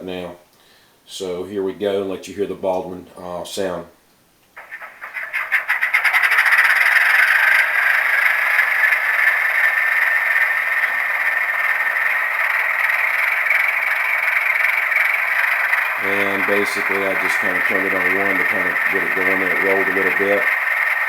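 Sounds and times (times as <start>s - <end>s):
model locomotive engine sound from speaker: 5.6s - 21.0s.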